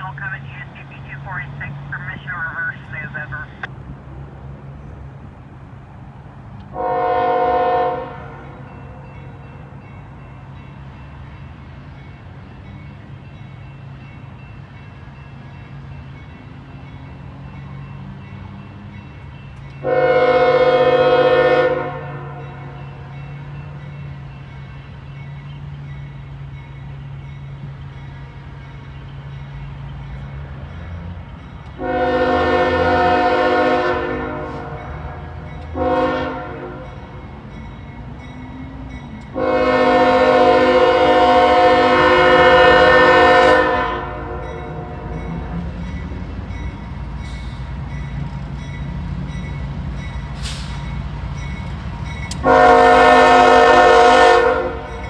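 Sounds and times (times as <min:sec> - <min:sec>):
diesel locomotive rumble: 0:00.0 - 0:55.0
locomotive air horn blasts: 0:06.8 - 0:08.5, 0:19.8 - 0:22.5, 0:31.8 - 0:36.9, 0:39.3 - 0:45.2, 0:52.4 - 0:55.0.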